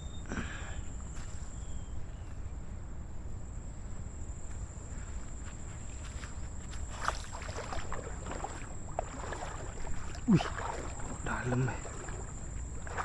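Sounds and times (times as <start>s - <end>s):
person wading into water: 6.7s - 13.0s.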